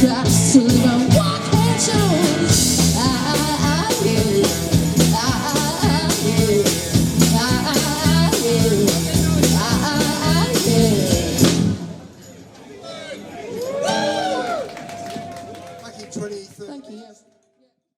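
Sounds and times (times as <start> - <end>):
blues-rock band playing: 0.0 - 12.0.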